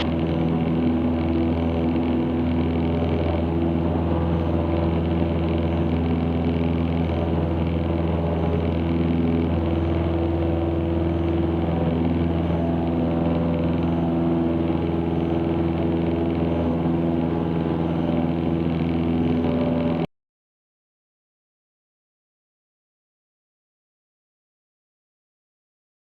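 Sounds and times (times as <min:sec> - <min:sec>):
airplane engine and propeller drone: 0:00.0 - 0:20.1.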